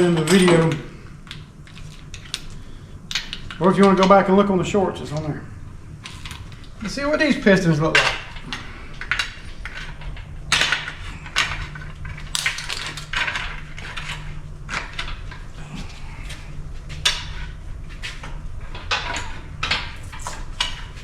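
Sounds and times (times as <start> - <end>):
metal tools clinking on engine: 0.0 - 0.8
steady low hum: 0.0 - 21.0.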